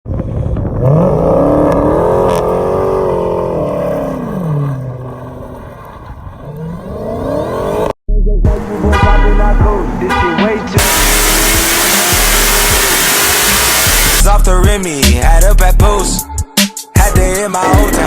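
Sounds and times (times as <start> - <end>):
car engine revving: 0.2 - 8.0, 8.6 - 14.2.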